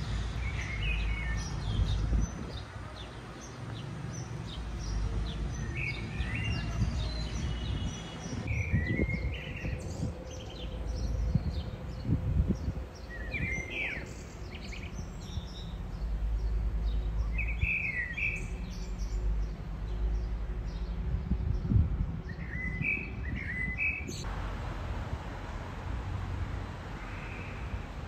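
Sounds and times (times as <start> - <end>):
songbirds chirping: 0.0 - 28.0
steady low rumble: 8.4 - 17.6.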